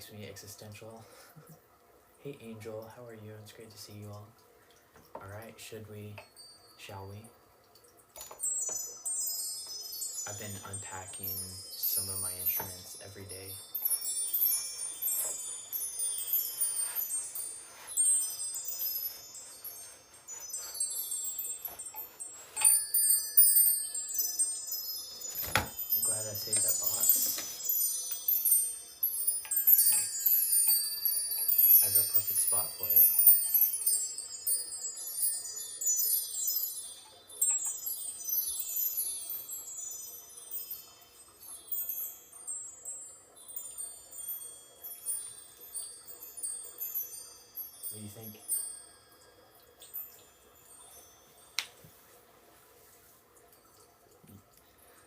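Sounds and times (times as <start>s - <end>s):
metal chimes tinkling: 5.1s - 55.0s.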